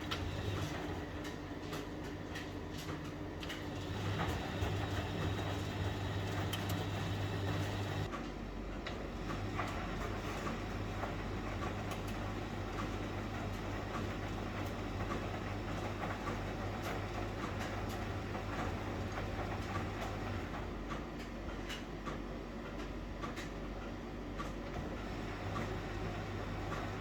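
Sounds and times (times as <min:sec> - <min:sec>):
low motor hum: 0:00.0 - 0:01.4, 0:03.7 - 0:08.1
washing machine rumble: 0:00.0 - 0:27.0.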